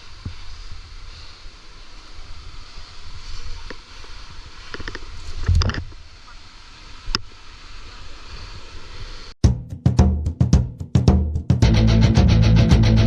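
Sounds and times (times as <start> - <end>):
water rumbling with hiss: 0.0 - 9.4.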